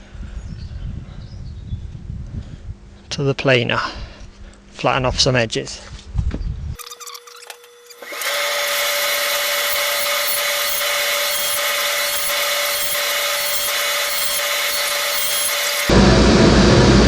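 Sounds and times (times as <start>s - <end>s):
electric planer shaving wood: 7.8s - 16.0s.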